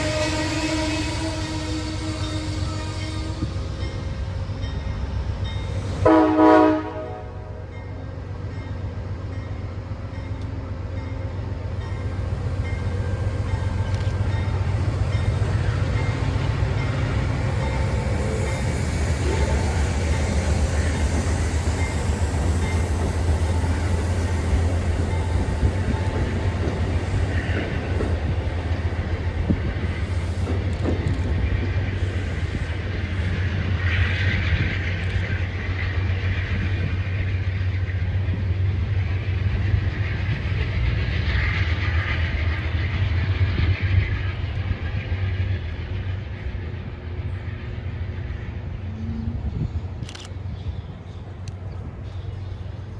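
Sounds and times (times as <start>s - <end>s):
high-pitched train squeals: 0.0s - 6.4s, 7.6s - 28.2s
train rumbling: 0.0s - 52.9s.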